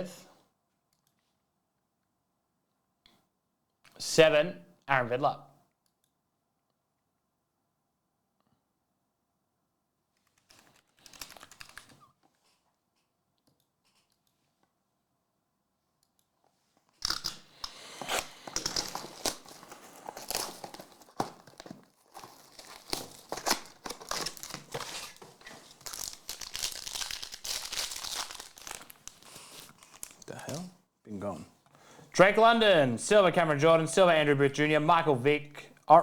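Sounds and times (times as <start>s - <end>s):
cards handled: 17.1s - 30.7s
plastic wrapping crinkling: 17.1s - 30.7s.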